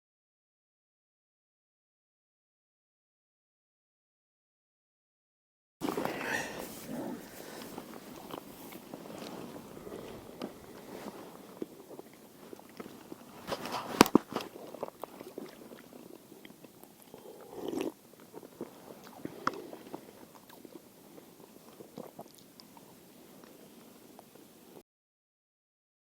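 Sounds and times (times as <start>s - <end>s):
short rustle: 5.8s - 11.6s, 12.4s - 14.6s.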